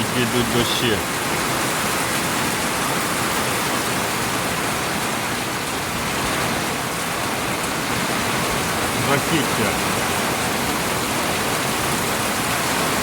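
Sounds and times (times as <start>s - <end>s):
heavy rain downpour: 0.0s - 13.0s.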